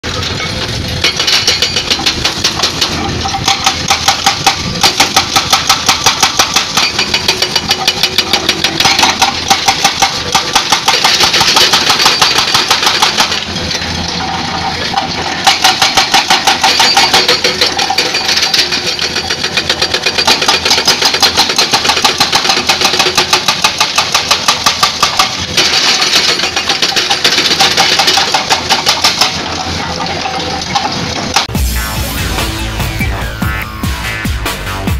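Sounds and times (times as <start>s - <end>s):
diesel engine running: 0.0s - 22.2s, 28.2s - 34.9s
hydraulic breaker hammering rock: 0.0s - 31.6s.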